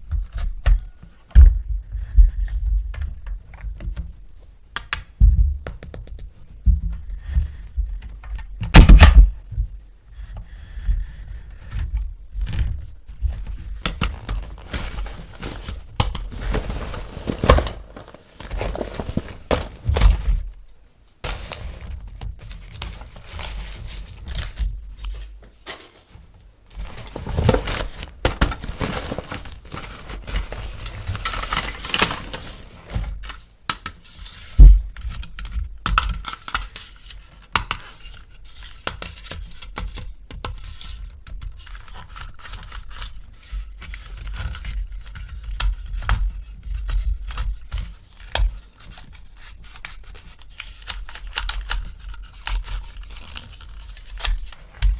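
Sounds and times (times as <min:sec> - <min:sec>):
packaging crinkling and tearing: 0:13.8 - 0:20.4, 0:26.7 - 0:33.4.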